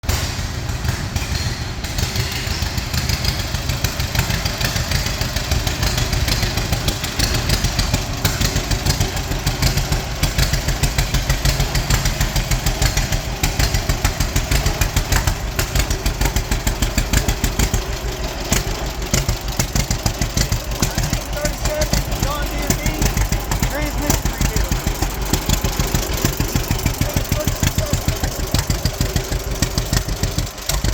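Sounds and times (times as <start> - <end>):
engine running with pulsing beat: 0.0 - 30.9.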